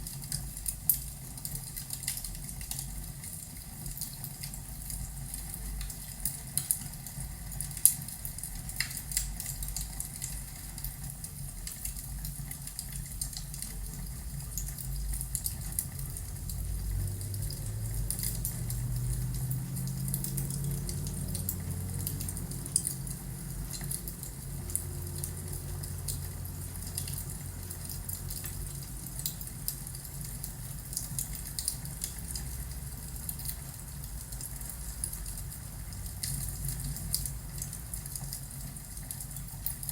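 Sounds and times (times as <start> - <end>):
fireplace fire crackling: 0.0 - 39.9
low rumble: 14.4 - 27.6.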